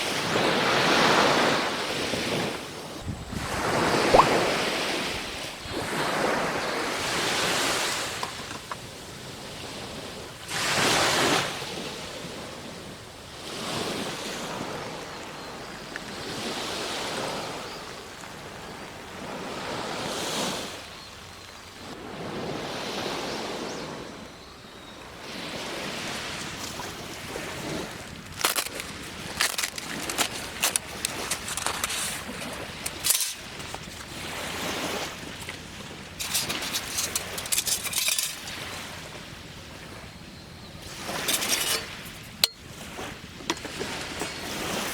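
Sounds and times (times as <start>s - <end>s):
waves washing onto beach: 0.0s - 21.0s, 25.2s - 40.2s, 40.8s - 44.9s
sharp clicks and clinks: 36.2s - 38.5s, 41.2s - 42.6s.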